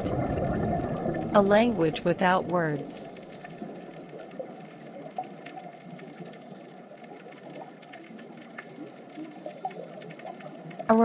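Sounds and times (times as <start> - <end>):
faint ticks: 3.0 - 10.9.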